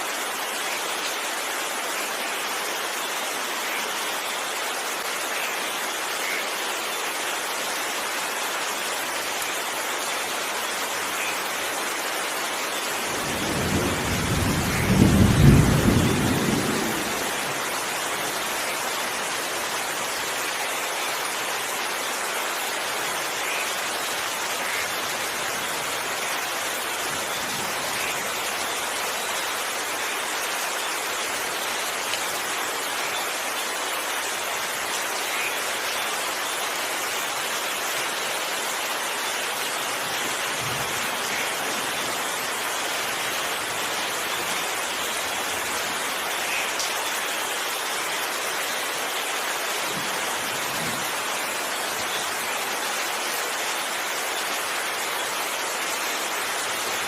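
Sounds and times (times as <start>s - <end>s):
steady rain falling: 0.0s - 57.0s
rumble of thunder: 13.2s - 17.6s.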